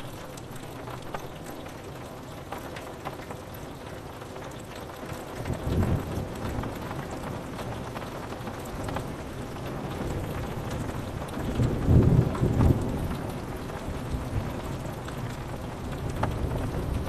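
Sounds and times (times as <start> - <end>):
rain pattering on window glass: 0.0 - 17.0
low thunder rumble: 9.5 - 17.0.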